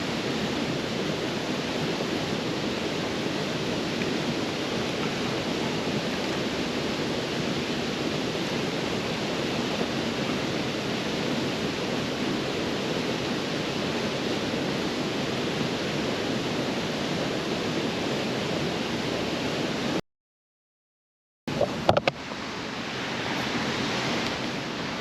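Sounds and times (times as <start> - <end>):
waterfall rushing: 0.0 - 20.0, 21.6 - 25.0.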